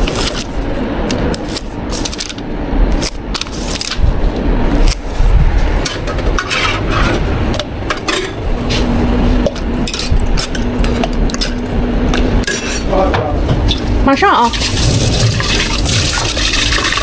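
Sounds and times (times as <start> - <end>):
low machine hum: 0.0 - 17.0
cups and utensils clinking: 12.4 - 12.9.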